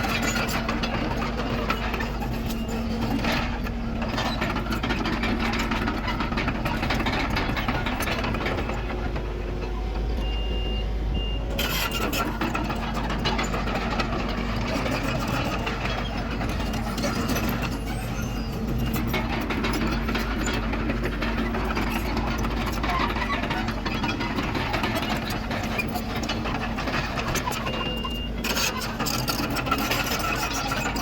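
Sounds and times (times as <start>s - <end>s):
diesel engine running: 0.0s - 31.0s
backup alarm beeps: 10.2s - 11.5s.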